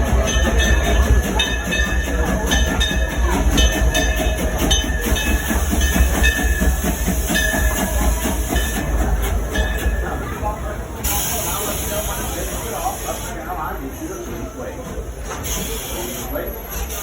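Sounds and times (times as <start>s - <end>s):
wheels clacking over rail joints: 0.0s - 10.2s
train rumbling: 0.0s - 17.0s.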